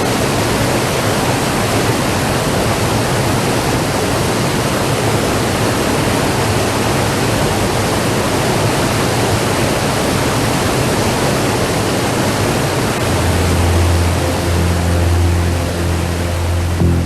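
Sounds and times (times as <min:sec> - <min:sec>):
rushing white water roar: 0:00.0 - 0:17.0
low steady tone: 0:12.9 - 0:17.0.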